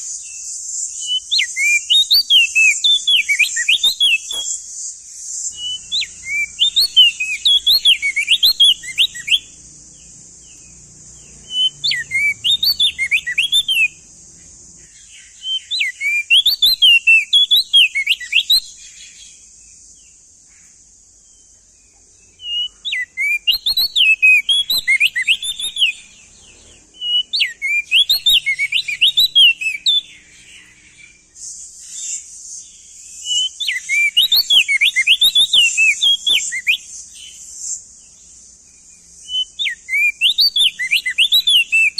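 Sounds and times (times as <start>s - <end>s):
bird singing whistled notes: 0.0s - 41.9s
steady high hiss: 0.0s - 41.9s.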